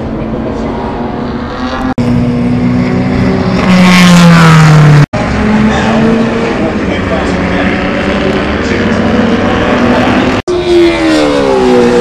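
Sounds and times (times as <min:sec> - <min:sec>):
racing car engines: 0:00.0 - 0:12.0
racing car passing by: 0:00.5 - 0:12.0.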